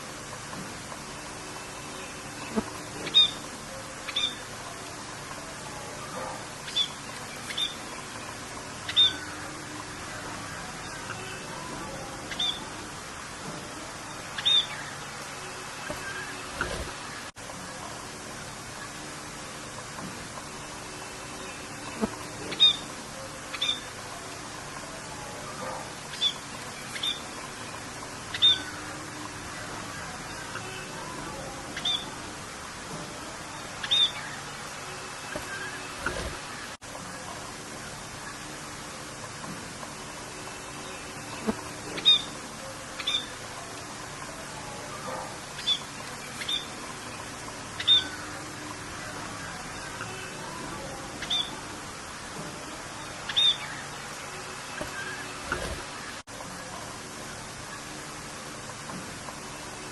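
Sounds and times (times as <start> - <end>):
rain hiss: 0.0 - 59.9
bird chirps: 4.1 - 4.4, 6.6 - 8.0, 8.8 - 9.4, 12.2 - 12.7, 14.4 - 15.0, 21.9 - 22.9, 25.7 - 27.4, 28.3 - 28.8, 31.8 - 32.2, 33.8 - 34.4, 41.3 - 42.4, 43.0 - 43.4, 45.6 - 47.2, 47.8 - 48.4, 51.2 - 51.6, 53.3 - 54.0.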